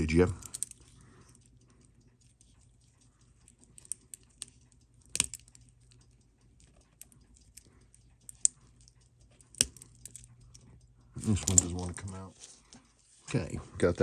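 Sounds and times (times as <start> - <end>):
small metal tools clicking on watch: 0.0 - 12.2.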